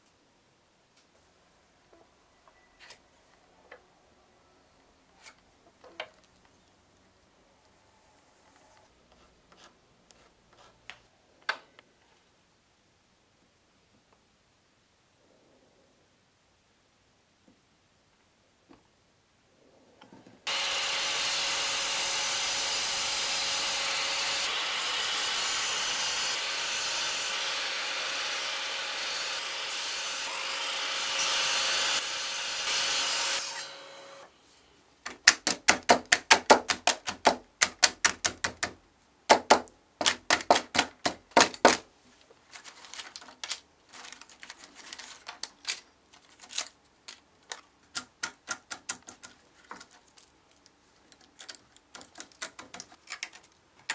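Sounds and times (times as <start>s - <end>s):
miter saw cutting wood: 20.5s - 34.3s
chisel snapping wood slivers: 46.4s - 53.9s.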